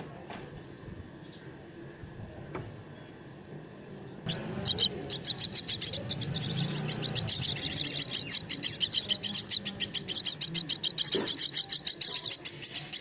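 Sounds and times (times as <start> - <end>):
nestlings calling: 4.2 - 13.0.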